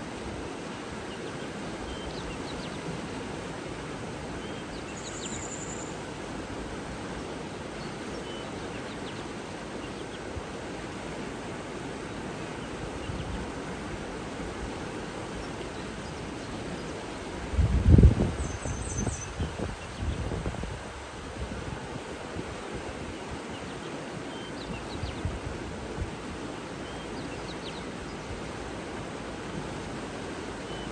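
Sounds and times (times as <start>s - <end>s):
rushing water: 0.0s - 30.9s
faint bird chirps: 4.4s - 6.0s.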